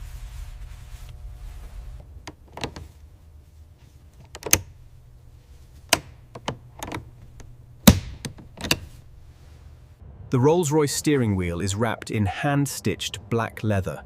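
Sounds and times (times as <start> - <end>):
sharp clicks and knocks: 5.8 - 9.0.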